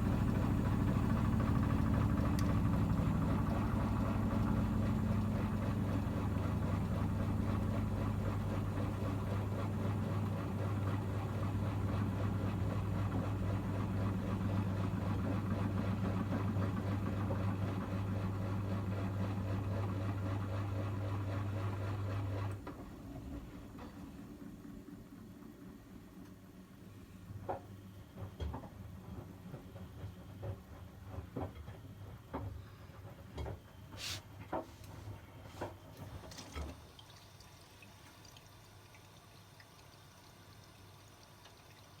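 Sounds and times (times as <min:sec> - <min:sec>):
washing machine humming: 0:00.0 - 0:42.0.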